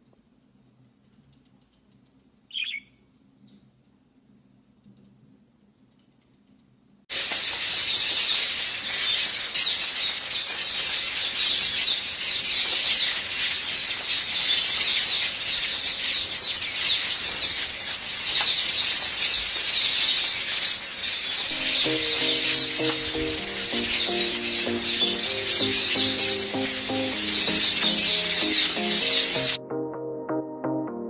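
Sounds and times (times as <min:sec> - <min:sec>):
birds chirping: 0:02.5 - 0:03.0, 0:07.4 - 0:29.6
steady hiss: 0:07.1 - 0:16.0, 0:17.2 - 0:29.6.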